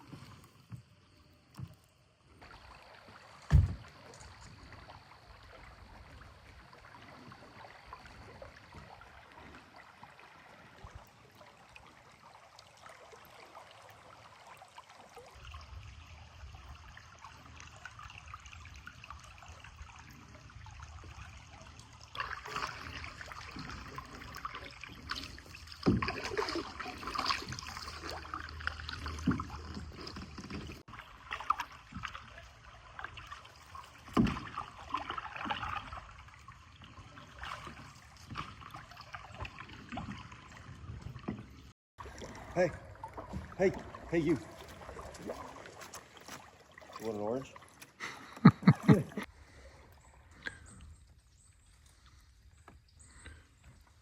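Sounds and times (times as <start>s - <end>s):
water splashing: 0.0s - 52.3s
creek water trickling: 0.0s - 54.0s
sharp thump: 3.5s - 3.8s.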